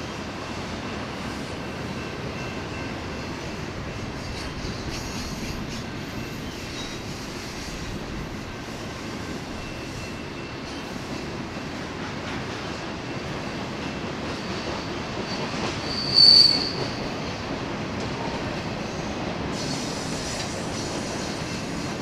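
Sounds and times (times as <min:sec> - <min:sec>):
train wheels rumbling on rail: 0:00.0 - 0:22.0
high wheel squeal: 0:15.3 - 0:17.1.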